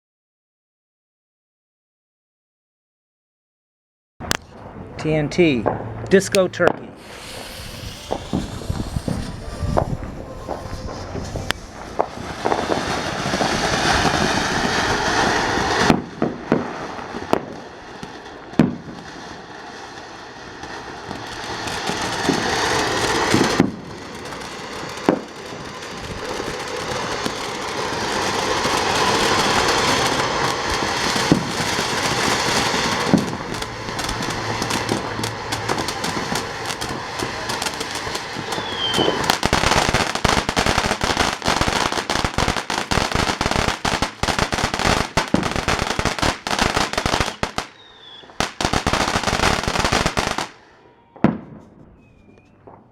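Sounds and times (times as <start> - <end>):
firework pops: 5.6 - 19.0, 21.1 - 50.5
firework fountain hissing: 5.8 - 50.7
dense rapid crackling: 24.3 - 41.2.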